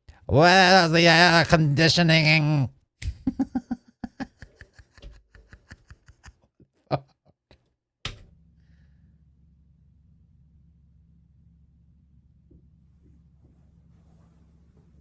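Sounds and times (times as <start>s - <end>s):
steady low hum: 8.3s - 15.0s.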